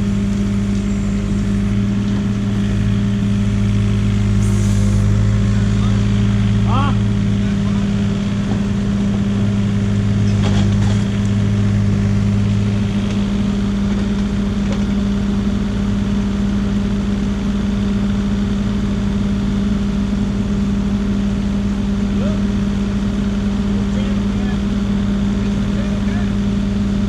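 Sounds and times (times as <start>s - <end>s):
excavator diesel engine humming: 0.0s - 27.0s.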